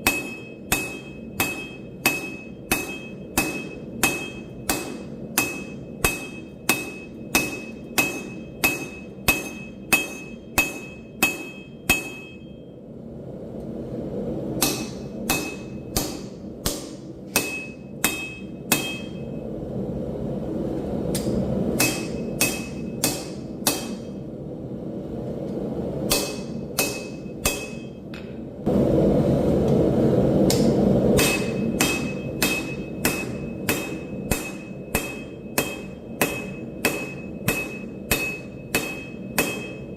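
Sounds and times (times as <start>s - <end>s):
hammer ringing on anvil: 0.0s - 12.7s, 14.6s - 19.4s, 21.8s - 24.2s, 26.1s - 28.3s, 31.2s - 39.9s.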